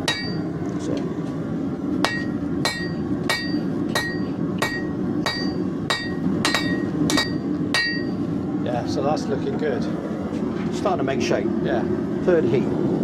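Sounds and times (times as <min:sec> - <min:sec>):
hammer ringing on anvil: 0:00.0 - 0:00.5, 0:02.0 - 0:08.2.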